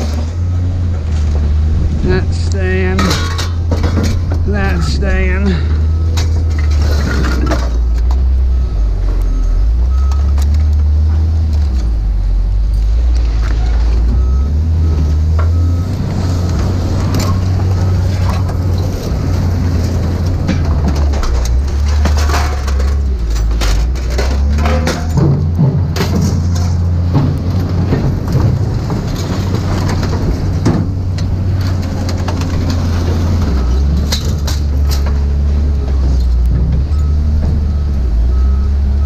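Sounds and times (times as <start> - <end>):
large vehicle engine rumble: 0.0 - 39.0
scrap metal clanking: 2.8 - 8.2, 17.0 - 35.3
reversing beeper beeps: 4.6 - 7.3, 8.4 - 10.4, 13.7 - 16.1, 36.9 - 39.0.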